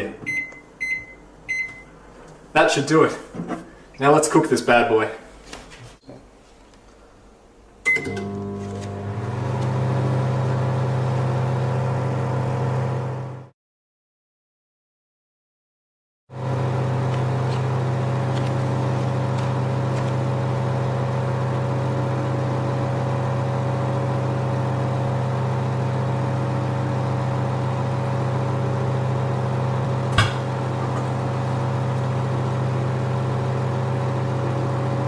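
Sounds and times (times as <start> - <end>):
microwave oven humming: 0.2 - 2.3, 7.8 - 13.5, 16.4 - 35.0
sharp pop: 30.1 - 30.5.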